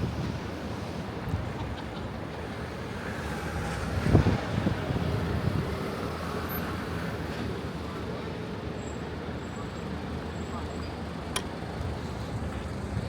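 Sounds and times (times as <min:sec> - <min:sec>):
street traffic noise: 0:00.0 - 0:13.0
vehicle passing: 0:02.8 - 0:07.0.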